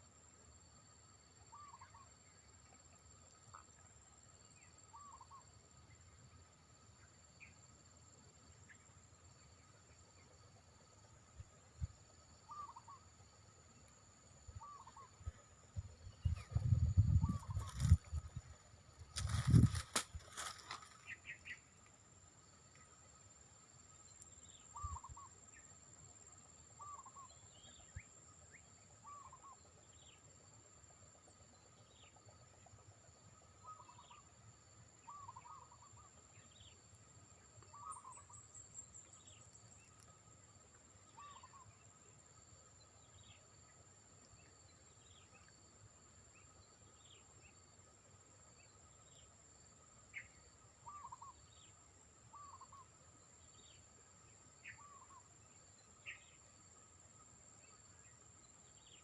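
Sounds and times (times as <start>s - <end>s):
bird calls and chirps: 1.5s - 2.1s, 4.6s - 5.4s, 12.4s - 13.1s, 14.6s - 18.3s, 19.2s - 21.7s, 24.2s - 25.6s, 26.8s - 30.2s, 33.6s - 34.3s, 35.0s - 36.8s, 37.5s - 40.0s, 41.1s - 41.8s, 50.1s - 52.9s, 54.6s - 55.3s, 56.0s - 56.4s
high-pitched insect drone: 14.4s - 21.7s.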